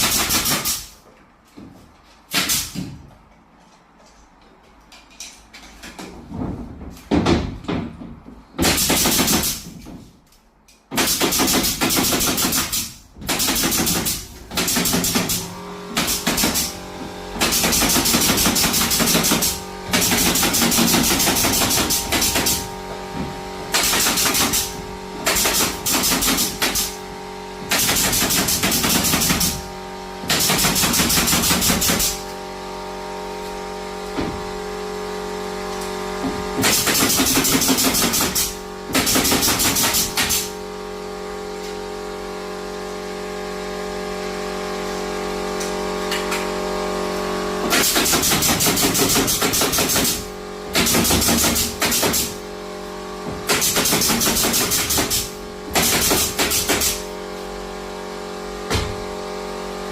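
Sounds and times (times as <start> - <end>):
steady machine hum: 13.4 - 59.9.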